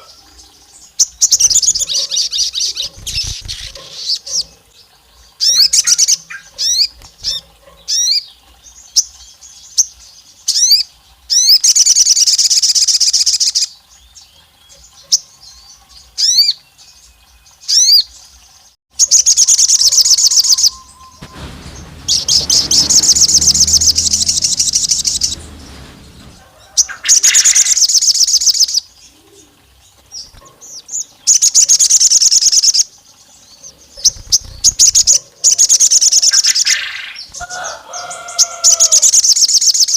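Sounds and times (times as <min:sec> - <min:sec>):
songbird chirping and trilling: 0:00.0 - 0:18.2
rustling fluttering noise: 0:01.4 - 0:04.3, 0:19.4 - 0:28.5, 0:33.9 - 0:35.7.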